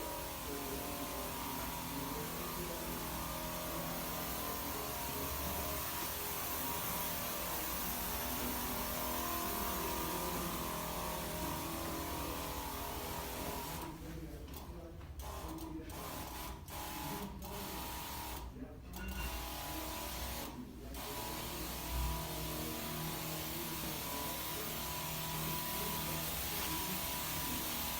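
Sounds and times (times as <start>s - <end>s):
spray hiss: 21.0s - 27.9s.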